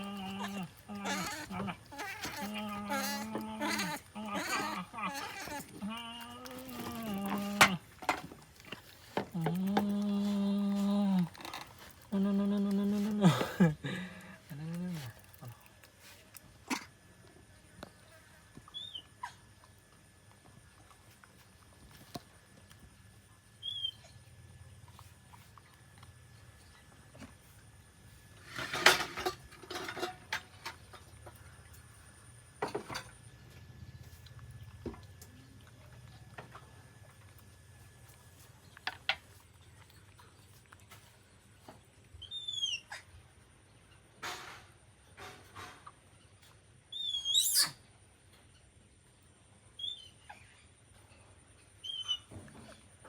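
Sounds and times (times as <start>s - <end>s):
young monkey squealing: 0.0s - 7.0s, 42.2s - 43.1s, 46.9s - 47.8s, 51.8s - 52.3s.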